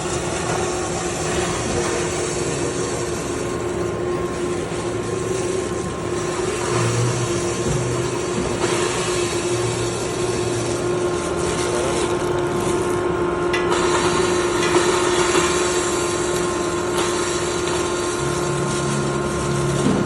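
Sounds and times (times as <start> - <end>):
grinder motor hum: 0.0 - 20.0.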